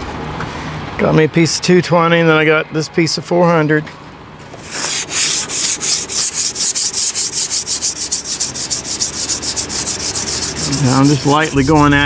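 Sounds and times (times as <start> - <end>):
hand sanding strokes: 4.6 - 12.0.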